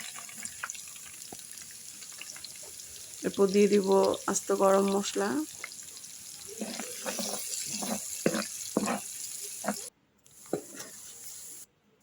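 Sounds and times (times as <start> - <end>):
onion sizzling in oil: 0.0 - 11.7
spatula scraping a pan: 6.5 - 9.9, 10.5 - 11.6.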